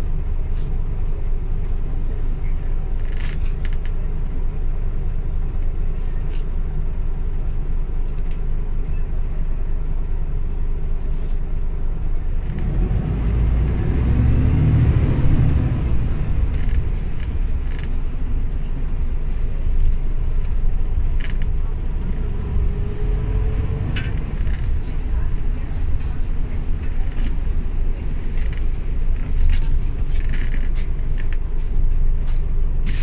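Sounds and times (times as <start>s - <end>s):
bus engine: 0.0s - 33.0s
small rattles and clicks: 16.5s - 18.0s, 19.8s - 21.6s, 28.3s - 31.5s.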